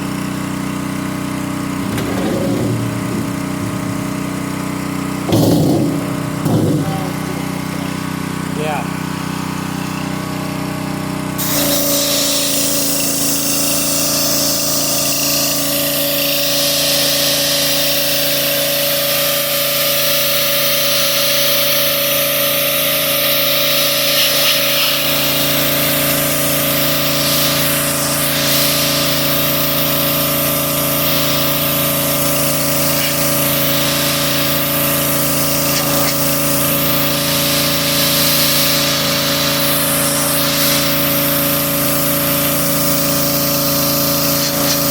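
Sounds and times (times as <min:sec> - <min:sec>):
pressure washer engine running: 0:00.0 - 0:44.9
water spray hissing: 0:23.0 - 0:44.9.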